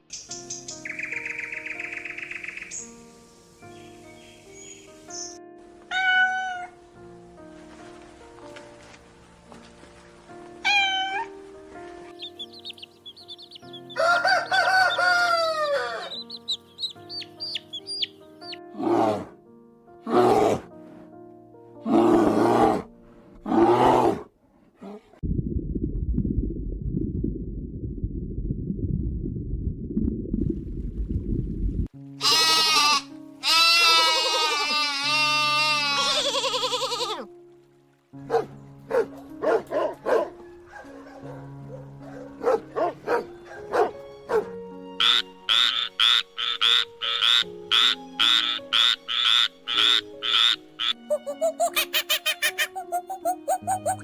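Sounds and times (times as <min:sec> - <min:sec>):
soft background music: 0:00.0 - 0:24.2, 0:31.8 - 0:54.0
low rough rumble: 0:25.2 - 0:31.9
wavering bleats: 0:32.2 - 0:37.2
frog croaking: 0:45.0 - 0:51.0.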